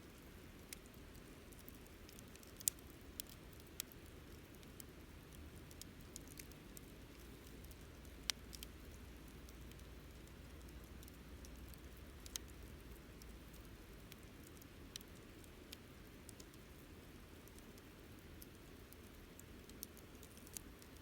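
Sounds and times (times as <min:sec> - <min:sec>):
campfire pops and snaps: 0:05.6 - 0:12.6.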